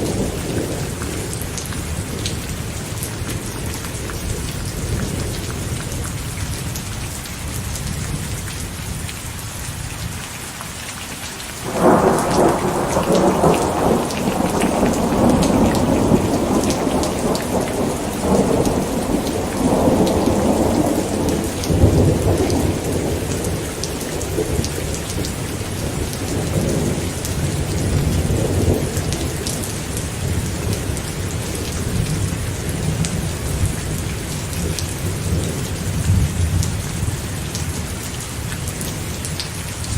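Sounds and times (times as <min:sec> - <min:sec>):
rain falling: 0:00.0 - 0:39.9
thunderclap rumbling: 0:11.6 - 0:37.2.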